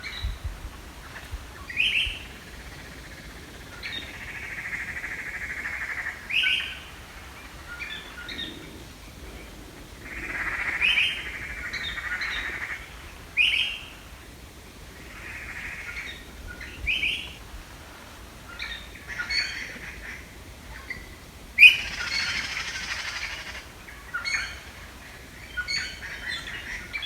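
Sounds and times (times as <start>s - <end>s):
rapid bird trills: 21.6s - 23.7s.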